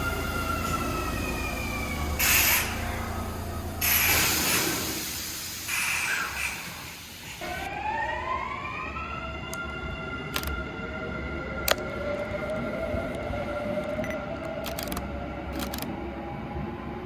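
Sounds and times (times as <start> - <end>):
train rushing hiss: 0.0 - 7.7
train inverter whine rising: 0.0 - 17.0.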